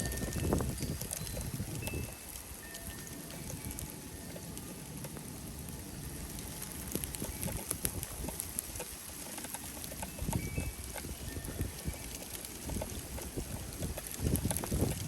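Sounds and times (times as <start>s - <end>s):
wind buffeting microphone: 0.0s - 4.6s, 5.3s - 15.0s
sharp ticks: 6.2s - 15.0s.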